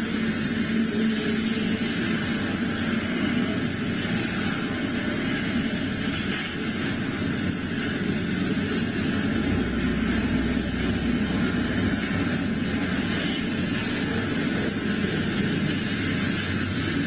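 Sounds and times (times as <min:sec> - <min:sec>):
steel wheels rumbling on rails: 0:00.0 - 0:17.0.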